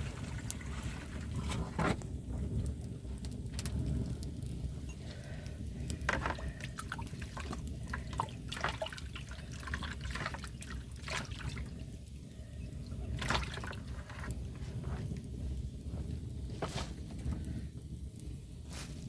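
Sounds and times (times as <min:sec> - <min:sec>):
low steady rumble: 0:00.0 - 0:19.0
water dripping and splashing: 0:05.1 - 0:14.3.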